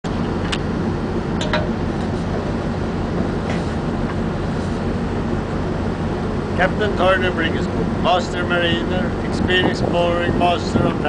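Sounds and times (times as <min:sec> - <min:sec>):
boat engine droning: 0:00.1 - 0:11.0.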